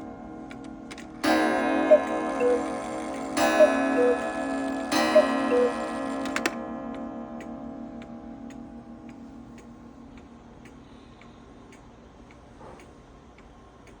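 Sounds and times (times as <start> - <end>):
clock ticking: 0.0 - 6.6, 7.4 - 14.0
chime ringing: 1.2 - 6.3.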